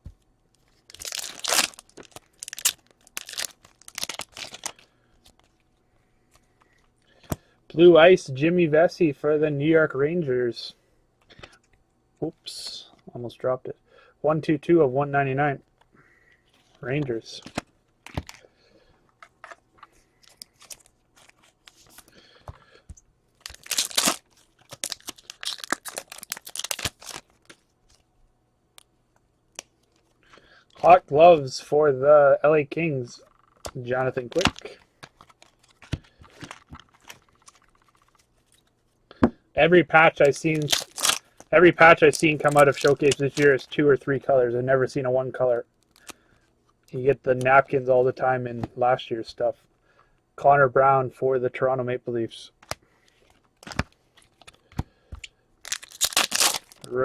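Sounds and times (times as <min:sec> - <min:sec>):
plastic wrapper crinkling: 0:00.8 - 0:05.6, 0:20.2 - 0:22.1, 0:23.4 - 0:28.1, 0:33.4 - 0:38.9, 0:40.0 - 0:43.8, 0:45.8 - 0:46.2, 0:52.6 - 0:57.0
cards being handled: 0:19.2 - 0:28.0, 0:33.4 - 0:38.8, 0:40.1 - 0:43.8.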